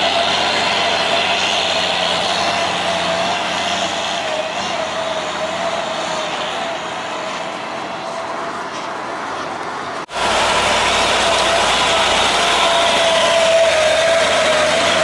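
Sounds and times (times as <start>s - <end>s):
heavy truck engine under load: 0.0s - 15.0s
steady whine: 10.0s - 15.0s.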